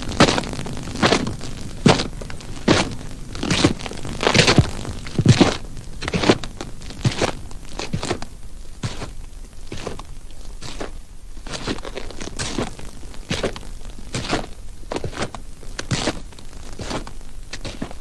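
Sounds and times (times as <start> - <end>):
crunching knocks: 0.0 - 10.1.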